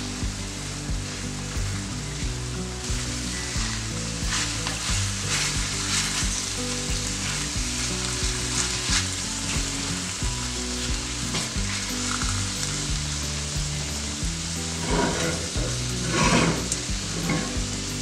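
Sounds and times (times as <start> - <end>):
mushrooms sizzling in a skillet: 0.0 - 18.0
spatula scraping a pan: 2.9 - 9.9, 14.8 - 17.6.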